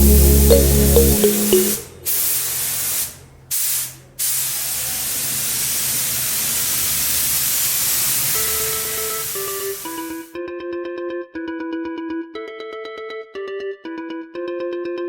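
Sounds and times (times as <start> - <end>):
spray paint hissing: 0.0 - 10.3.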